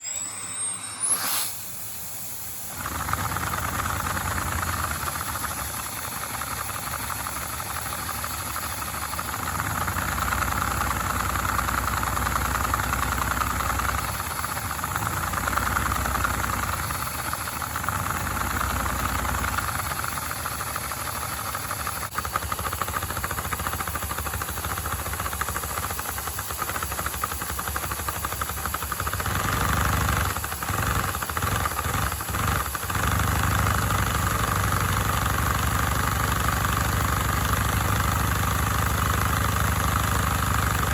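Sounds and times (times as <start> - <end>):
air hissing: 0.0 - 3.0
engine mechanical rattle: 2.7 - 40.9.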